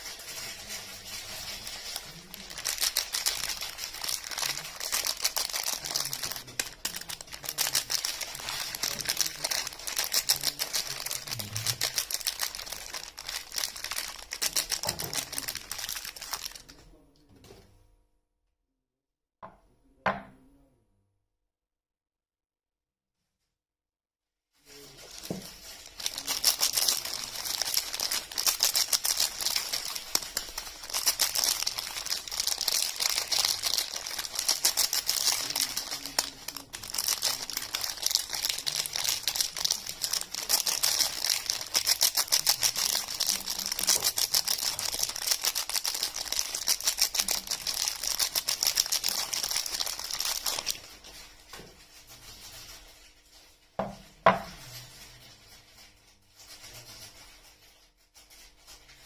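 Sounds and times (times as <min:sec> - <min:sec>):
wrapping crinkling and tearing: 0:00.0 - 0:16.8, 0:24.6 - 0:53.7.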